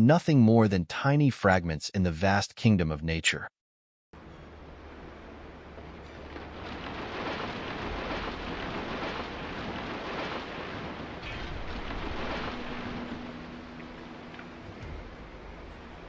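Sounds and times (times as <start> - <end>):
faint steady hum: 4.2 - 9.6
wind and rain: 4.2 - 16.0
wind on microphone: 5.9 - 16.0.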